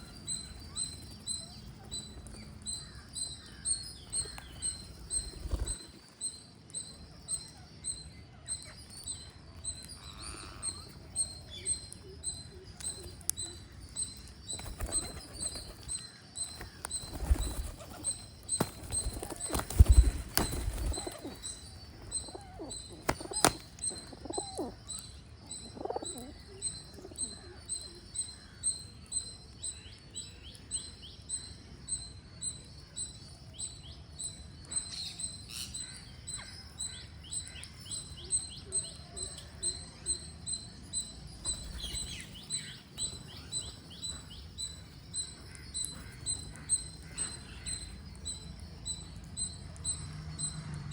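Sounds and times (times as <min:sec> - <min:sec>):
high bird chirp: 0:00.0 - 0:50.9
lower falling bird calls: 0:09.7 - 0:28.0
wing flaps: 0:16.7 - 0:21.4.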